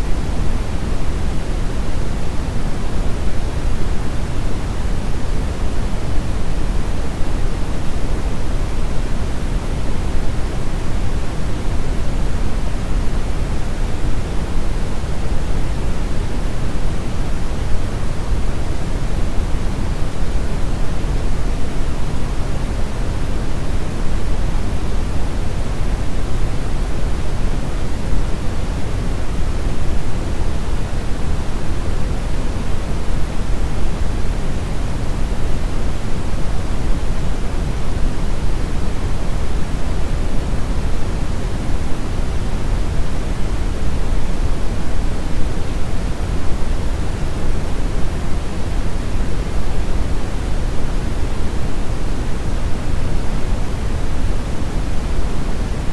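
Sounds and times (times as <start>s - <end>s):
brown noise rumbling hiss: 0.0s - 55.9s.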